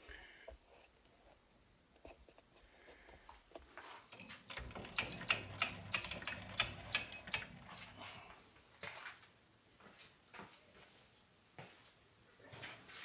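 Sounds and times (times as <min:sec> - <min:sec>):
tap wrench clicking in metal: 0:04.1 - 0:07.5.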